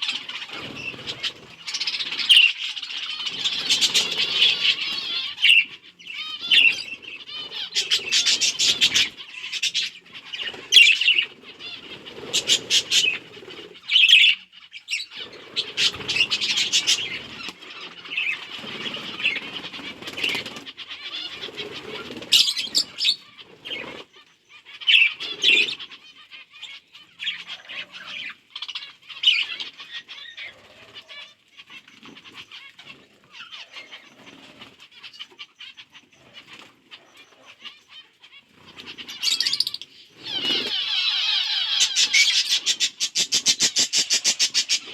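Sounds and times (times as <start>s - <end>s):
wings flapping: 0.0s - 14.1s, 15.1s - 24.1s, 34.1s - 34.9s, 36.3s - 37.3s, 38.5s - 44.9s
budgerigars chirping and chattering: 0.0s - 44.9s.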